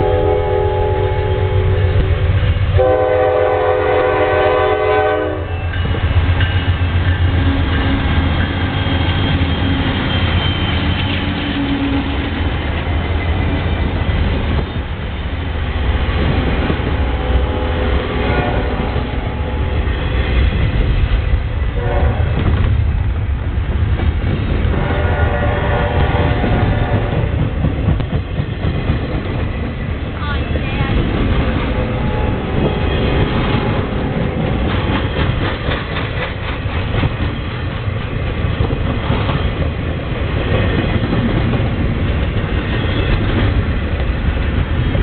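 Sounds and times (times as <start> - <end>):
train air horn: 0.0 - 5.6, 17.0 - 19.8, 21.8 - 22.4, 24.7 - 27.3, 31.8 - 34.5
freight train rumbling past: 0.0 - 45.0
wheels clattering on rails: 5.6 - 17.4, 25.9 - 45.0.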